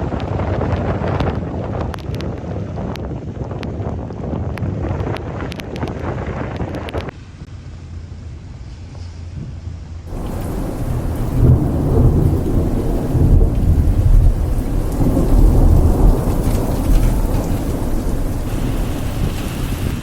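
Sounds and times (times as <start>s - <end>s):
heavy rain pouring: 10.1s - 20.0s
low rumble of thunder: 10.1s - 20.0s.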